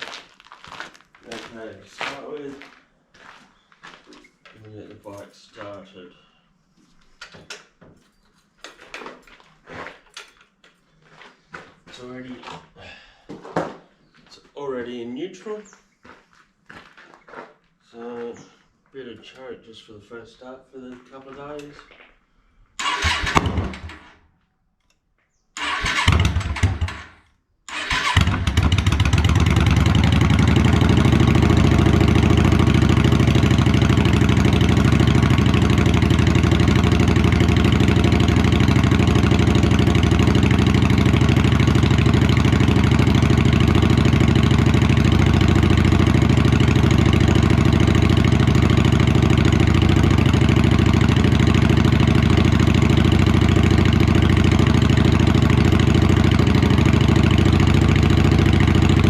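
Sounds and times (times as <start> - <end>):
electric starter cranking: 22.8 - 24.2, 25.6 - 29.9
motorcycle engine idling: 27.8 - 59.0.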